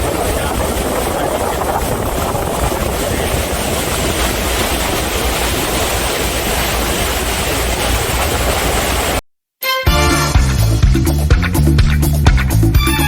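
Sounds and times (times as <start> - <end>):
rushing water: 0.0 - 9.2
rushing wind: 0.0 - 9.2.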